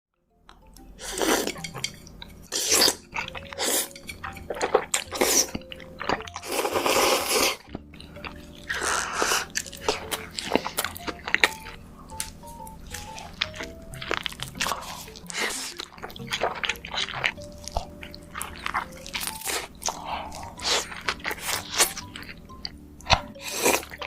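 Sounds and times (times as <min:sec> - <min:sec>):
noisy slurp: 0:04.6 - 0:07.7
wet crunchy bites and chews: 0:12.9 - 0:24.0.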